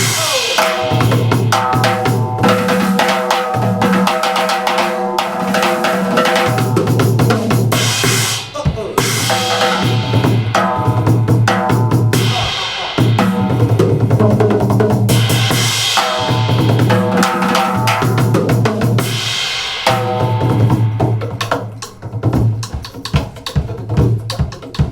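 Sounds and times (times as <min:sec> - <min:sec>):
band music: 0:00.0 - 0:02.4, 0:07.7 - 0:14.6
drum kit playing: 0:00.0 - 0:24.9.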